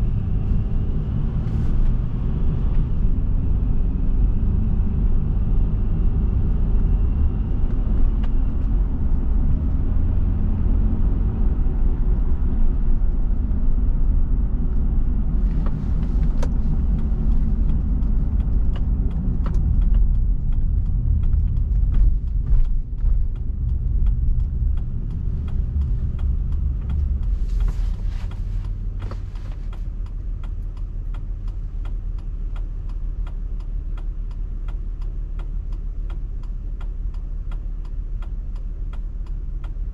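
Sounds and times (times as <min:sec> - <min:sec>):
car road and engine rumble: 0:00.0 - 0:39.9
faint evenly spaced ticks: 0:29.7 - 0:39.9.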